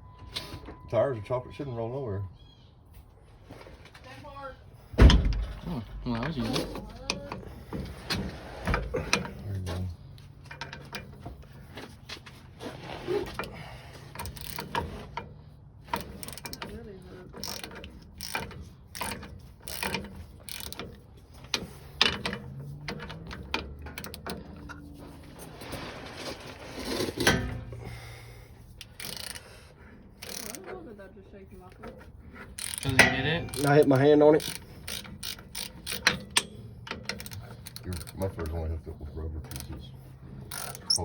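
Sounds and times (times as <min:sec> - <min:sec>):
socket ratchet clicking: 0:17.4 - 0:22.5, 0:28.8 - 0:29.5, 0:30.2 - 0:30.6, 0:32.6 - 0:38.2.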